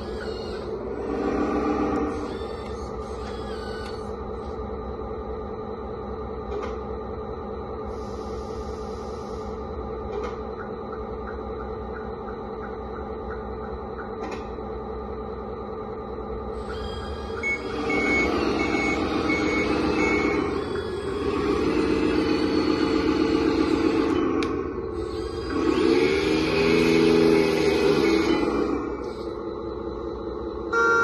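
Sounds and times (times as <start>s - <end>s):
simulated diesel engine: 0.0s - 31.0s
reversing beeps: 16.6s - 21.0s.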